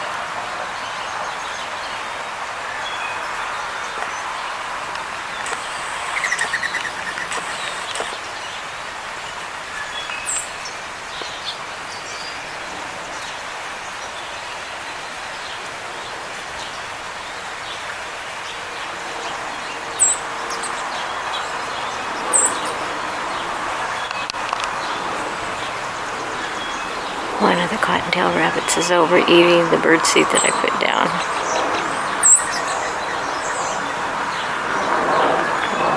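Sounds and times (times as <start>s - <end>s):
small birds chirping: 5.0s - 8.3s
steady background hum: 5.4s - 8.2s
bird trill: 5.5s - 8.2s.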